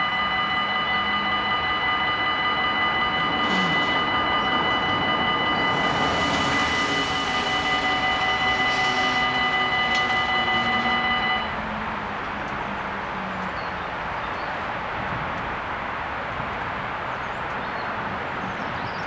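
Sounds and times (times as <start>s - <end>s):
level-crossing bells ringing: 0.0s - 12.2s
train passing: 0.0s - 16.2s.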